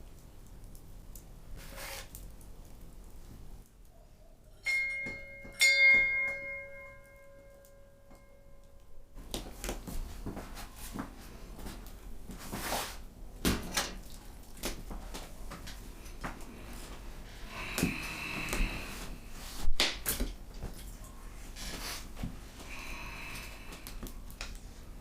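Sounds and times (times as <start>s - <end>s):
tableware clinking: 4.5s - 8.4s.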